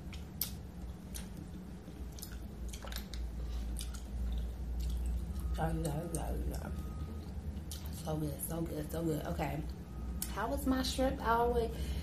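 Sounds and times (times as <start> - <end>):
wet mouth sounds: 0.0 - 5.4
person chewing seafood: 0.0 - 5.6
steady low hum: 0.0 - 12.0.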